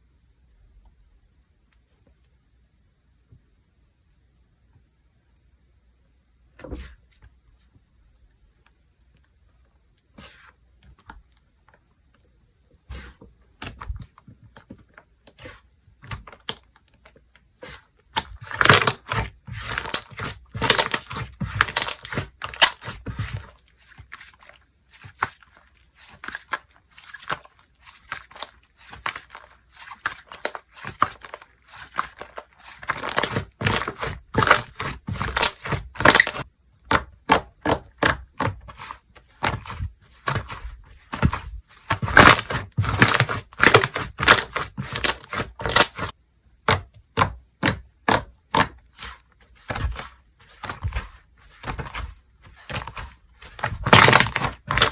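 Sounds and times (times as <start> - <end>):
slime clicking and crackling: 18.1 - 38.6, 41.9 - 46.1, 52.6 - 54.9.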